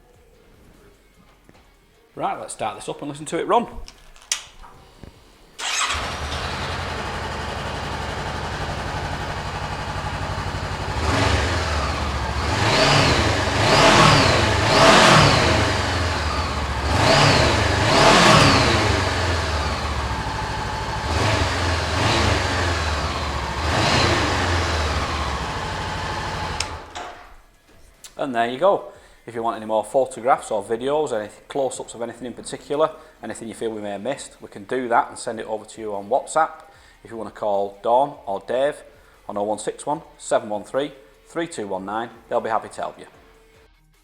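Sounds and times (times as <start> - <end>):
motorcycle engine starting and idling: 4.3 - 27.5
motorcycle engine revving: 4.8 - 27.2.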